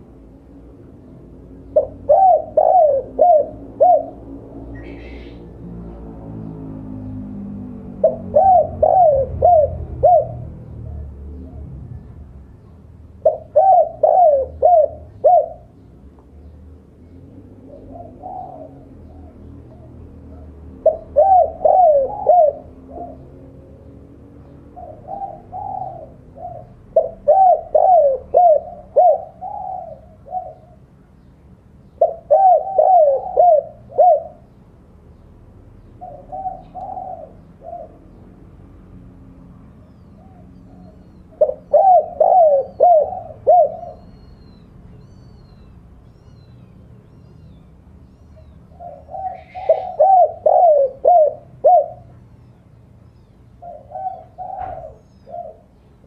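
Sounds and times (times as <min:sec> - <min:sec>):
dove cooing: 0:01.5 - 0:05.6, 0:07.9 - 0:12.1, 0:13.1 - 0:15.9, 0:17.4 - 0:23.9, 0:24.7 - 0:30.9, 0:31.9 - 0:34.6, 0:35.9 - 0:38.2, 0:40.0 - 0:45.6, 0:48.3 - 0:52.2, 0:53.5 - 0:55.8.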